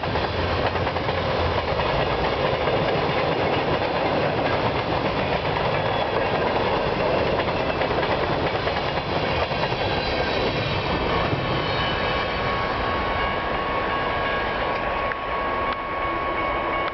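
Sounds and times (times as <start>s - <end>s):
train wheels rumbling and rattling: 0.0s - 15.3s
thin high ringing tones: 9.2s - 16.9s.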